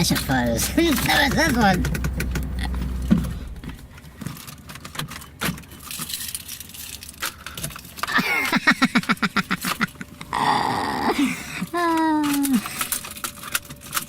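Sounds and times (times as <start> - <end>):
low hum: 0.0 - 7.4
car keys jangling: 0.0 - 8.1, 11.8 - 14.0.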